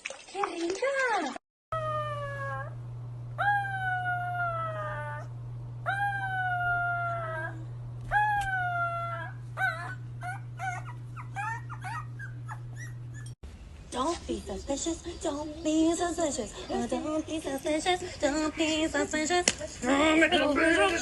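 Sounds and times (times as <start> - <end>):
young animal howling: 1.8 - 2.8, 3.4 - 13.2
steady low hum: 1.8 - 21.0.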